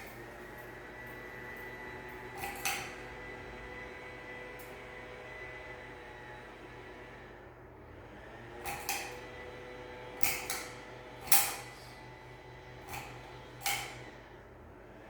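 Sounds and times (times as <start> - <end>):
fan parts knocking and clacking: 0.0 - 3.2.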